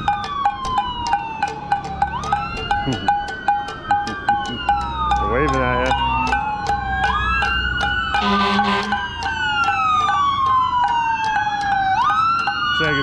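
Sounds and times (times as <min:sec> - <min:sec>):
sirens wailing: 0:00.0 - 0:13.0
short horn blast: 0:08.2 - 0:09.0.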